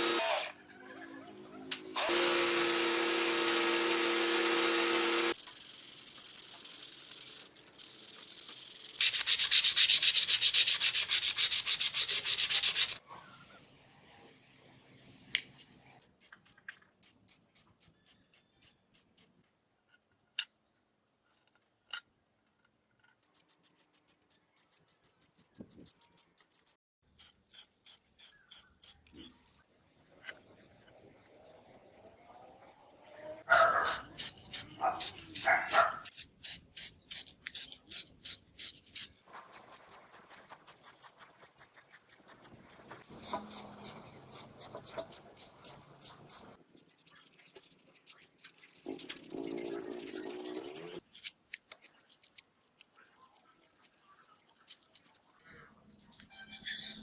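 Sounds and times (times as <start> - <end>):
power tool whine: 0.0 - 0.6, 2.0 - 5.4
hand sanding strokes: 9.0 - 13.0.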